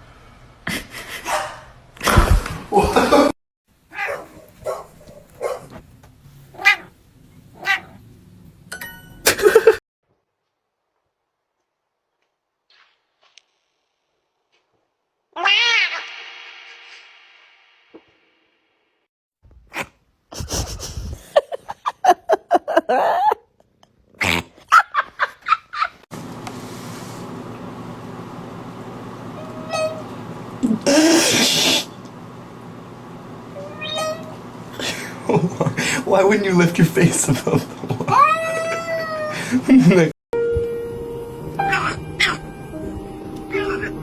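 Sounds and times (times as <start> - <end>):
cat meowing and yowling: 3.9 - 4.3, 6.6 - 6.9, 15.4 - 16.0, 29.4 - 30.0, 33.6 - 34.3, 38.1 - 39.4, 41.6 - 42.5, 43.5 - 44.0.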